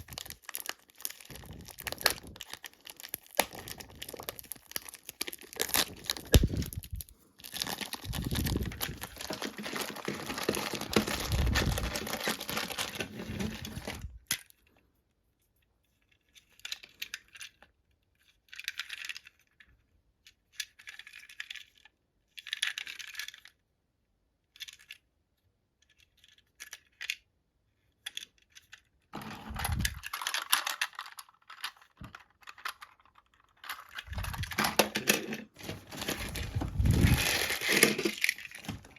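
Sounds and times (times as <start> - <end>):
plastic packaging crinkling and tearing: 0.0 - 14.3, 29.2 - 38.9
small plastic parts clicking: 0.0 - 14.6, 16.1 - 23.6, 24.4 - 25.1, 25.8 - 38.9.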